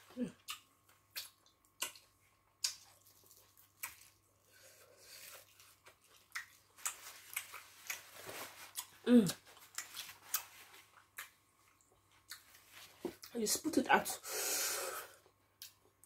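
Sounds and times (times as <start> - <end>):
wet chewing smacks and clicks: 0.4 - 4.2, 5.5 - 8.0, 8.8 - 12.6.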